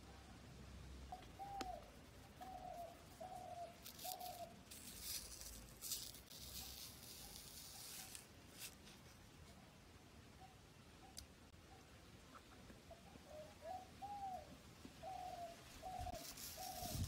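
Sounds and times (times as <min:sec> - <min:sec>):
bird calling: 0:01.1 - 0:04.6, 0:10.4 - 0:17.0.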